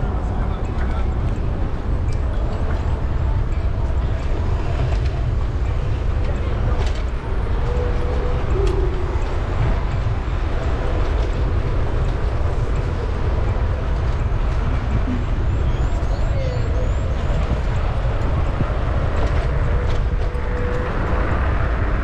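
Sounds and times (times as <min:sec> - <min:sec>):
traffic going by: 0:00.0 - 0:22.0
wind and road rumble: 0:00.0 - 0:22.0.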